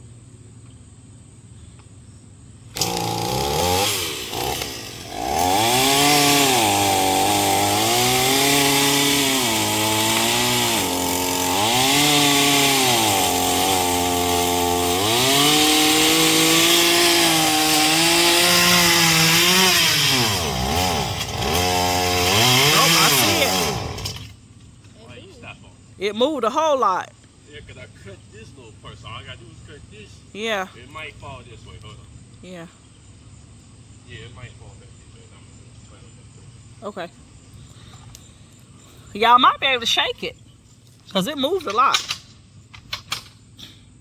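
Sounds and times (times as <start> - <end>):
chainsaw cutting tree trunk: 2.7 - 24.4.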